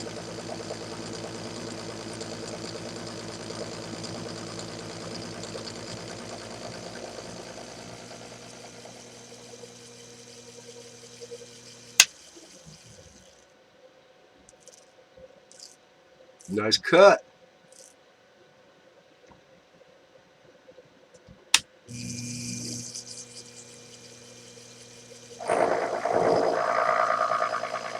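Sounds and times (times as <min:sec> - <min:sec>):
lathe motor and gear hum: 0:00.0 - 0:13.4, 0:21.9 - 0:27.9.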